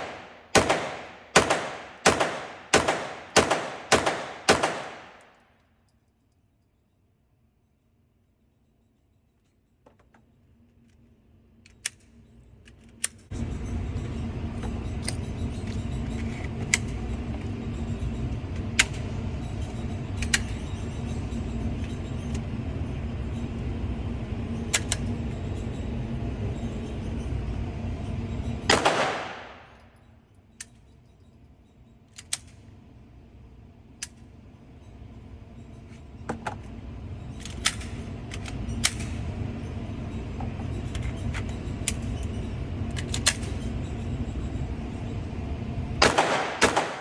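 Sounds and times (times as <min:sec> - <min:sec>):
gunshot cracks: 0:00.0 - 0:05.2, 0:28.7 - 0:29.6, 0:46.0 - 0:47.0
steady low hum: 0:00.0 - 0:47.0.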